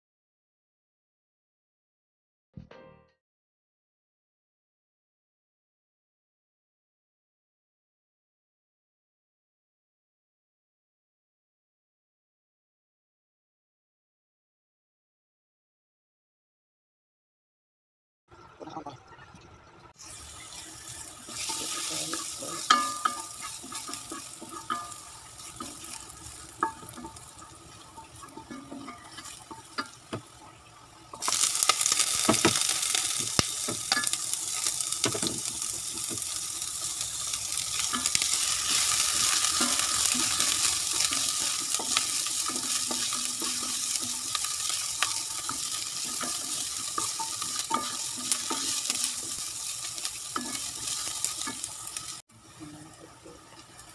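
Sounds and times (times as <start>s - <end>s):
garlic and onion sizzling in oil: 20.0s - 53.9s
wooden spatula scraping pot: 21.2s - 30.3s.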